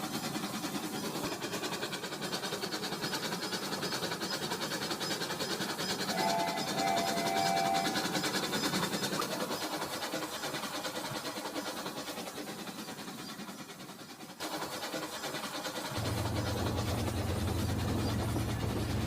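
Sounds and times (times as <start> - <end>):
toy train rattling on track: 0.0 - 19.0
steady low hum: 15.9 - 19.0.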